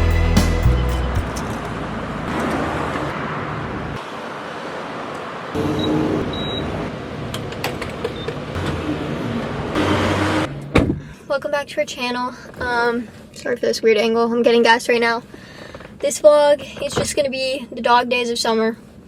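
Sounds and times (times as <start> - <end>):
road traffic hum: 0.0 - 13.4
short high beeps: 5.8 - 6.7.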